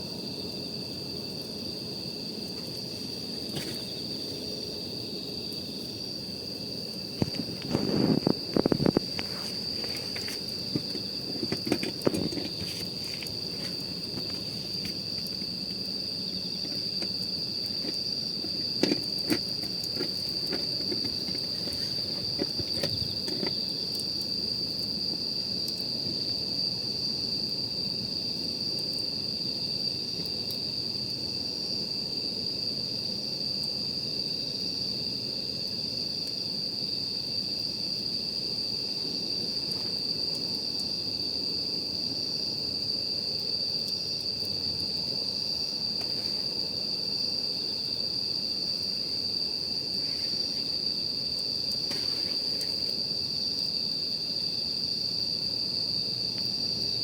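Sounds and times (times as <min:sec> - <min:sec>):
night insects trilling: 0:00.0 - 0:57.0
campfire crackling: 0:00.3 - 0:26.4.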